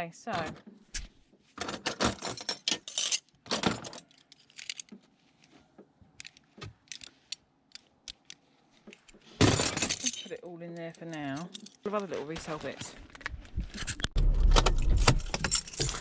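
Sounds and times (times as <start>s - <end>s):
small metal items clinking: 1.6s - 4.9s, 8.9s - 12.8s, 15.2s - 16.0s.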